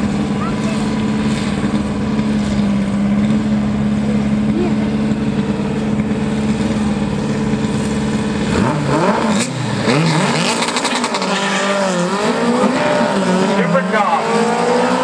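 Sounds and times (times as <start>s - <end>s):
drag car engines revving: 0.0s - 15.0s.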